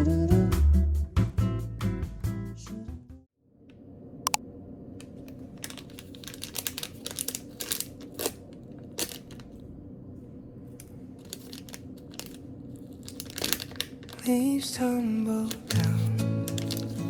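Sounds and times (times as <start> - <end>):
crinkling and rustling: 5.0 - 9.6, 10.7 - 14.6, 15.4 - 17.0.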